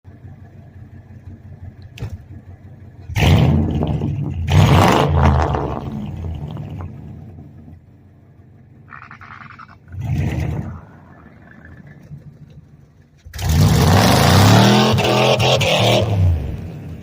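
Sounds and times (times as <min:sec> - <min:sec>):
truck engine idling and revving: 0:00.0 - 0:17.0.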